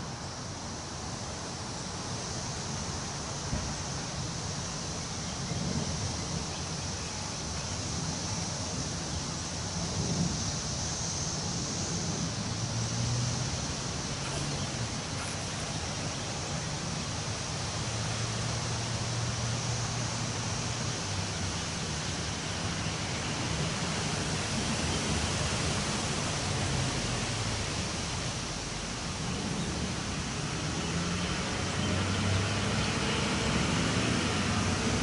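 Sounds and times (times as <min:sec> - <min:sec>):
wind blowing through trees: 0:00.0 - 0:35.0.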